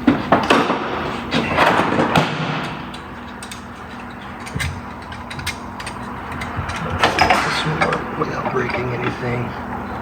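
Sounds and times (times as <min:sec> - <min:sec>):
tools scraping against metal: 0:02.6 - 0:09.4.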